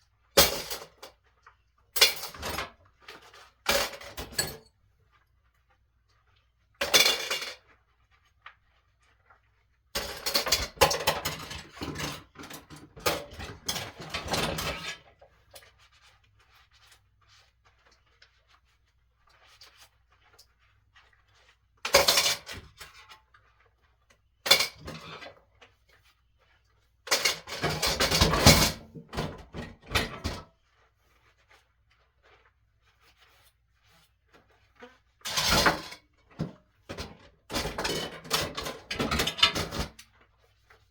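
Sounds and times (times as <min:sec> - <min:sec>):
dishes and cutlery clattering: 0:02.0 - 0:02.8, 0:03.7 - 0:04.7, 0:06.8 - 0:07.6, 0:10.0 - 0:15.1, 0:21.9 - 0:22.8, 0:24.5 - 0:25.3, 0:27.1 - 0:30.5, 0:35.3 - 0:40.0.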